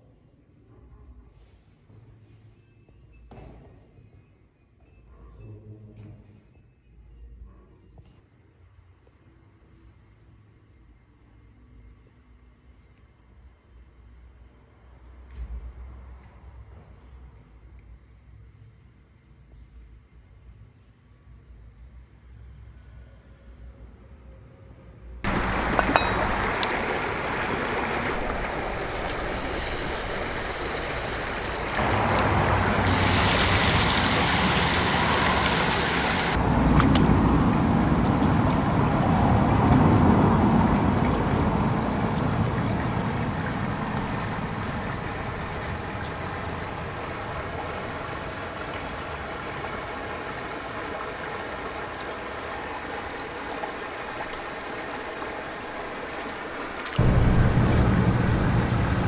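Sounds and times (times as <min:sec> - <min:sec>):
stream water rushing: 0:25.3 - 0:59.0.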